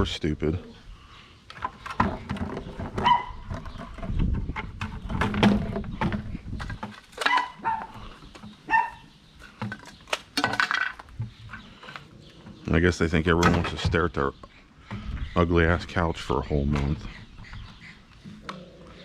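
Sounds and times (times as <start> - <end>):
dog barking: 3.0 - 3.4, 7.2 - 8.0, 8.7 - 9.1.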